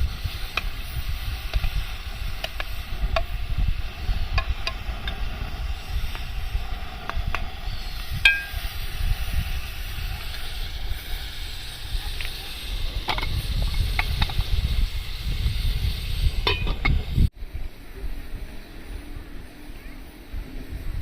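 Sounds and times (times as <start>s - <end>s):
wind rumble on microphone: 0.0s - 21.0s
metallic clink: 8.2s - 8.7s, 16.4s - 17.0s.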